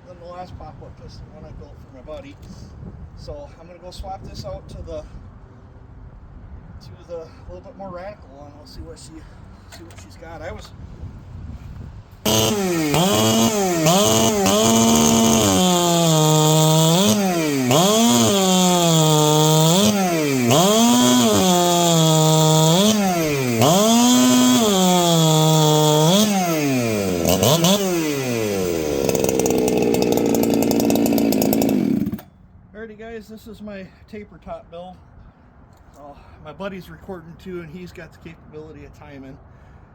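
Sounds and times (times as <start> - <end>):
chainsaw running at high revs: 12.3 - 32.3.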